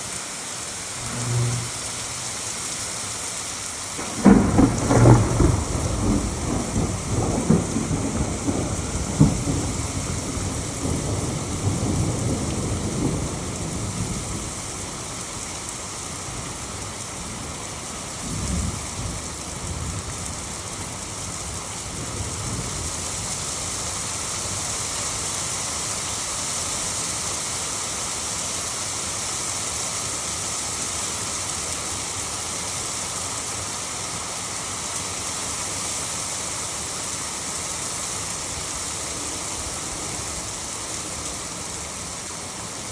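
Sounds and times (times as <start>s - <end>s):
hail and rain falling: 0.1s - 42.9s
thunder rumbling: 0.8s - 23.9s.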